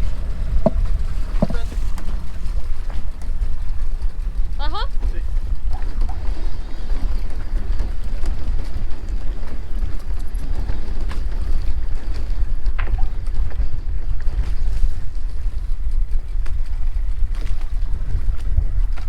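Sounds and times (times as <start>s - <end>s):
wind buffeting microphone: 0.0s - 19.0s
faint knocks: 0.5s - 4.7s.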